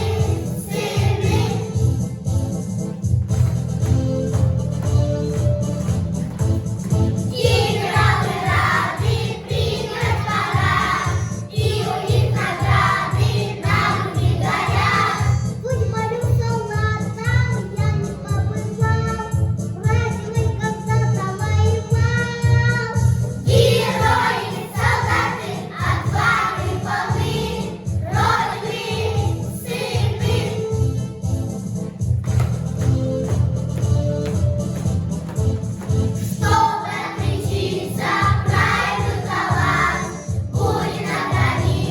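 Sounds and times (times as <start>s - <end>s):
children singing: 0.0s - 1.8s, 7.2s - 15.5s, 23.5s - 30.8s, 36.2s - 41.9s
accompaniment with steady beat: 0.0s - 16.5s, 22.8s - 41.9s.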